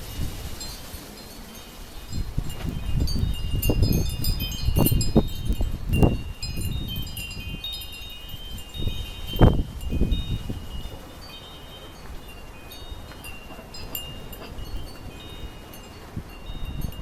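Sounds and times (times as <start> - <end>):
metal wind chimes ringing: 0.0 - 17.0
wind rumbling on microphone: 0.0 - 17.0.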